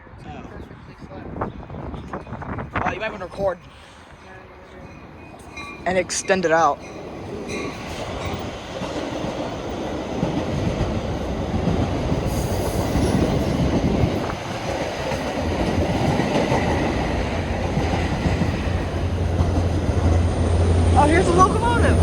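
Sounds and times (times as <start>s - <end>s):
freight train cars rattling: 0.7s - 22.0s
locomotive engine drone: 16.7s - 22.0s.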